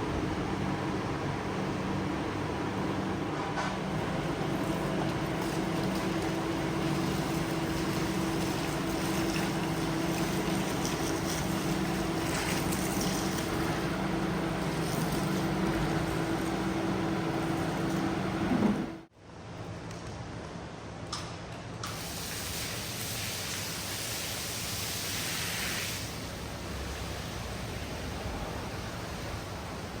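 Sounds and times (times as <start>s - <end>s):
carpet cleaner motor humming: 0.0s - 19.1s.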